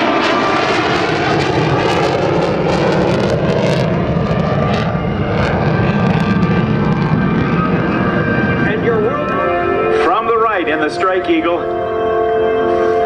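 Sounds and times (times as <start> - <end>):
fighter jet flying past: 0.0 - 11.2.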